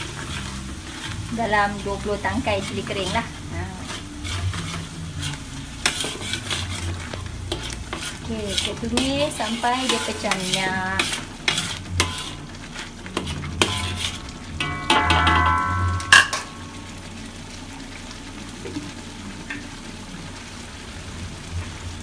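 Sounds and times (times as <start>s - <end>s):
metal spatula scraping a wok: 0.0s - 16.5s
paste sizzling in oil: 0.0s - 19.2s
sharp metal clank: 14.6s - 16.6s.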